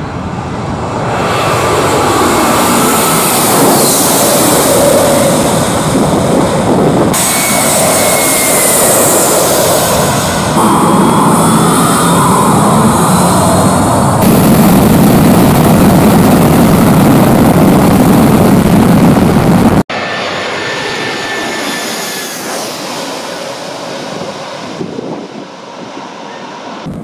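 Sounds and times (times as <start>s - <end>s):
high jet whine: 0.0s - 27.0s
jet engines roaring: 0.0s - 27.0s.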